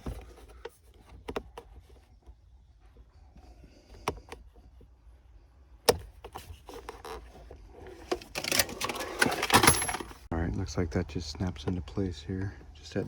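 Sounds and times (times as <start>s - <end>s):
plastic scraping and rattling: 5.9s - 10.3s.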